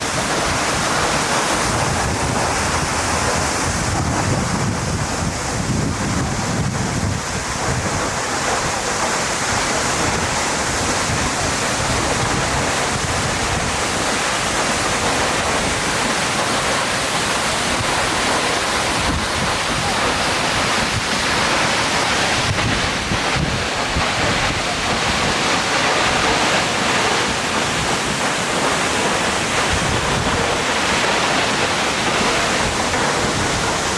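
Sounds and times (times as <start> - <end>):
waterfall roaring: 0.0 - 33.9
wind buffeting microphone: 0.0 - 33.9.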